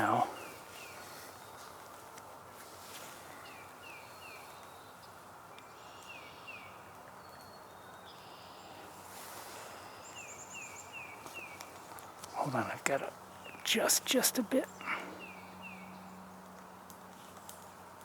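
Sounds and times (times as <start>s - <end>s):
outdoor hiss: 8.2s - 15.5s.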